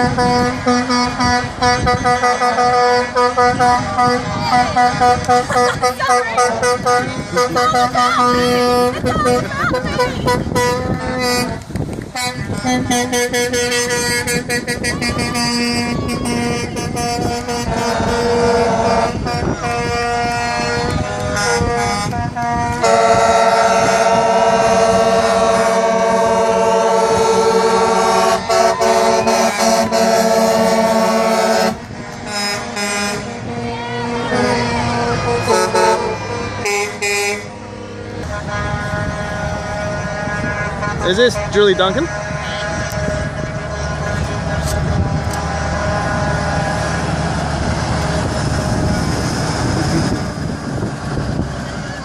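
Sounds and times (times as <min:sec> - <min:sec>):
truck air horn blasts: 0:00.0 - 0:50.9.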